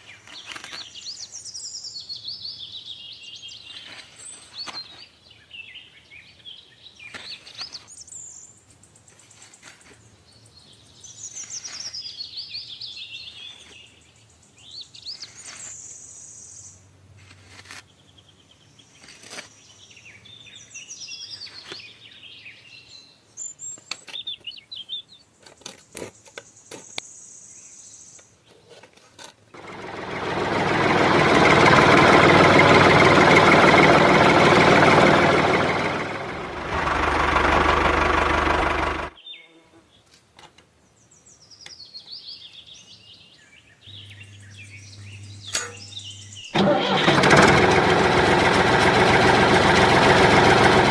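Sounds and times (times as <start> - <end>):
birds chirping: 29.6 - 40.1, 40.9 - 47.0.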